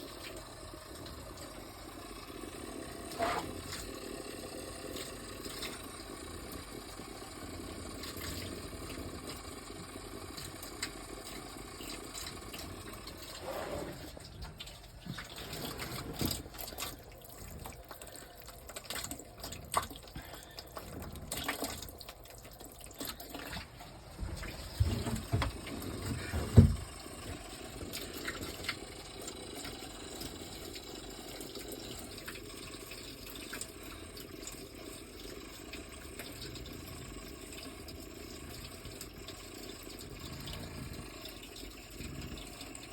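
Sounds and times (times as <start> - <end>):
water running and spraying: 0.0 - 36.6.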